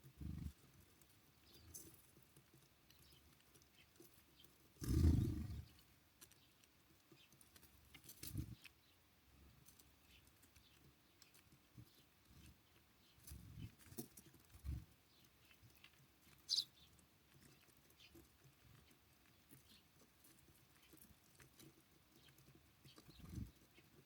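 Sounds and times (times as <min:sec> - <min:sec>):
birds pecking and hopping: 0:00.0 - 0:24.0.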